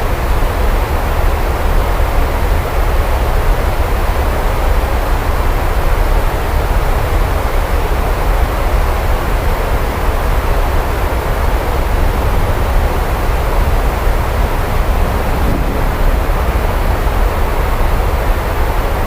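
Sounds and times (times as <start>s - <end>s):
heavy rain hissing: 11.0s - 19.0s
deep low rumble: 12.4s - 18.6s.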